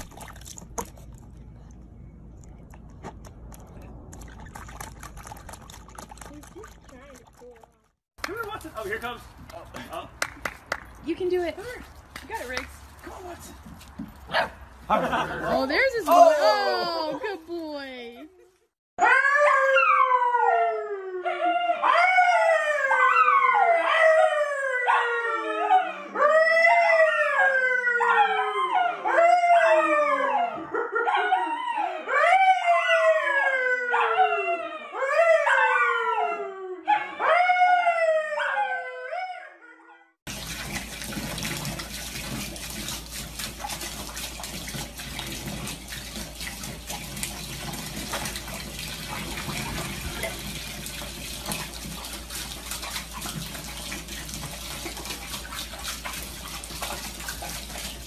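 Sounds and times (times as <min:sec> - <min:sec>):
dog howling: 0:19.0 - 0:39.9
tap water running into bathtub: 0:40.3 - 0:58.0.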